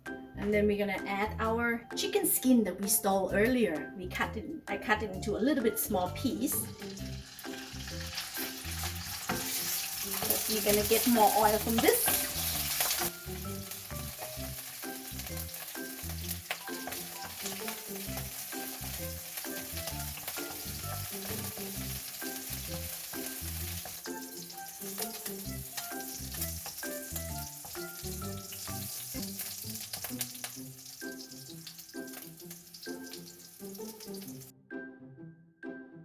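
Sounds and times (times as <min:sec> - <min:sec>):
chicken skin sizzling in oil: 0:06.3 - 0:34.5
stirring in pan: 0:06.7 - 0:34.5.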